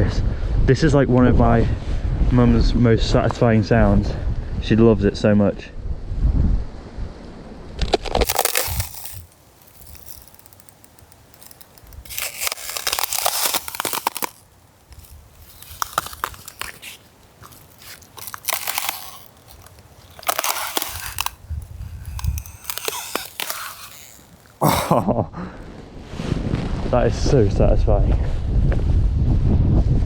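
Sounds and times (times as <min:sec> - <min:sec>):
dry leaves crunching: 0:08.2 - 0:25.0.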